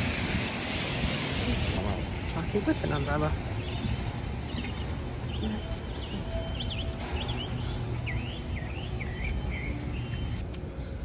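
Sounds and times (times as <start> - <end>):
city street traffic rumble: 0.0 - 11.0
small bird chirping: 3.5 - 10.4.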